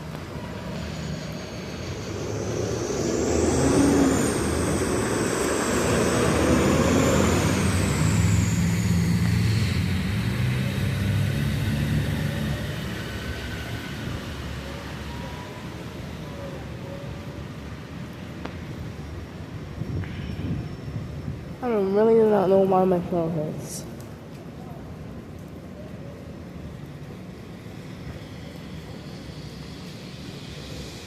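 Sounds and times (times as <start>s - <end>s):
high gliding whine: 0.0s - 16.0s
large vehicle passing: 0.0s - 16.2s.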